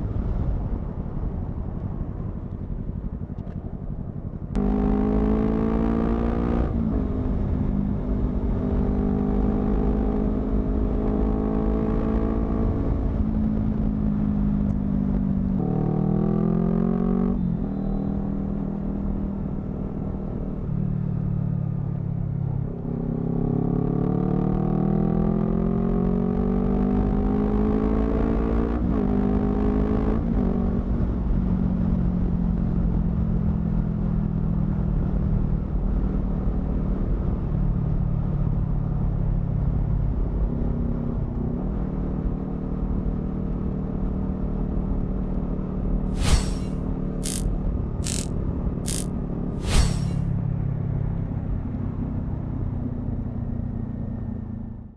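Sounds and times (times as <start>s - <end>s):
motorcycle engine accelerating: 1.9s - 14.6s, 46.1s - 48.3s, 48.9s - 50.3s.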